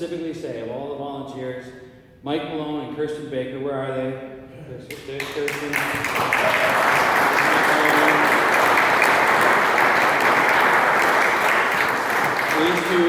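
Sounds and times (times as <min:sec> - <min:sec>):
crowd applauding: 0:04.9 - 0:13.0.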